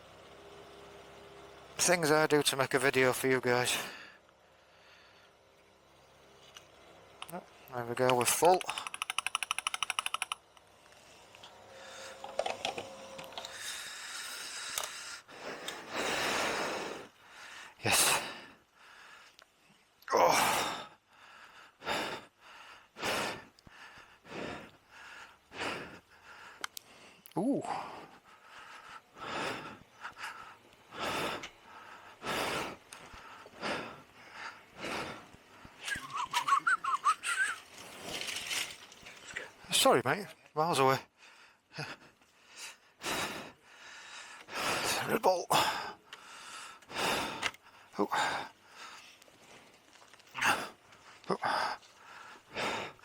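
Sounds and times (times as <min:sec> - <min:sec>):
man breathing heavily: 0:03.8 - 0:05.6, 0:10.9 - 0:12.4, 0:13.4 - 0:35.8, 0:41.1 - 0:53.0
fuel pump nozzle clicking: 0:08.0 - 0:10.7
handling noises: 0:36.0 - 0:39.6.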